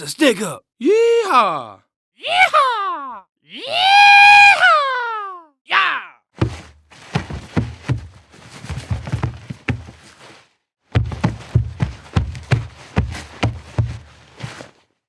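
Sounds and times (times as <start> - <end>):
short thumps and knocks: 6.4 - 8.1.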